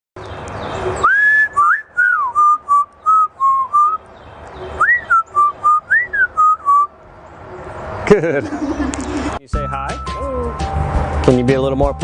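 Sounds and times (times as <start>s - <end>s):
parrot whistling a tune: 1.0s - 4.0s, 4.8s - 6.9s.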